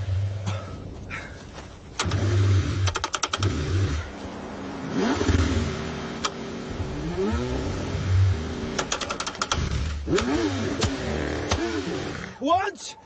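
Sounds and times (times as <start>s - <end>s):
car engine revving: 2.0s - 12.4s.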